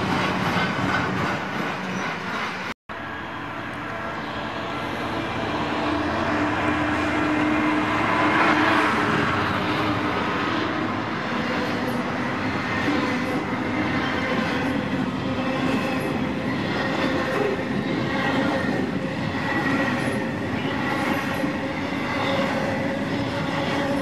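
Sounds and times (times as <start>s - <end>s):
train wagons rolling rumble: 0.0s - 2.7s
diesel locomotive engine hum: 0.0s - 24.0s.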